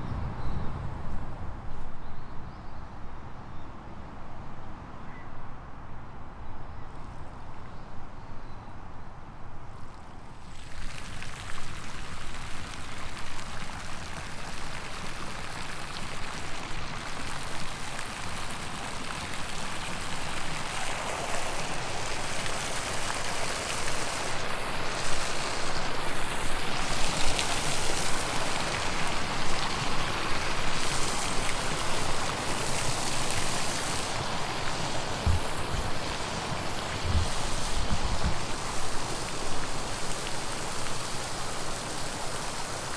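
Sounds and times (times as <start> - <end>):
low thumps: 0.0 - 2.5, 35.0 - 38.5
rushing splashing water: 10.4 - 42.9.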